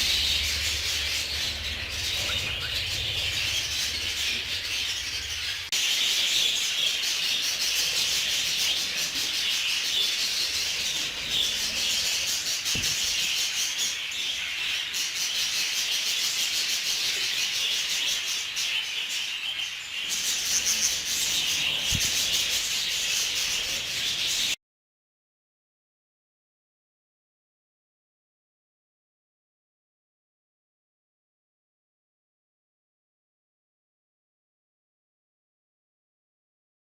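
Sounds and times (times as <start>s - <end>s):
budgerigars chattering and chirping: 0.0s - 24.6s.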